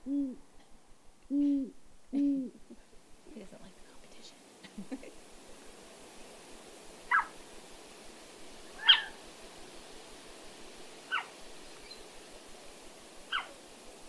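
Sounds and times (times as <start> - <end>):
owl calls over a speaker: 8.8 - 9.2.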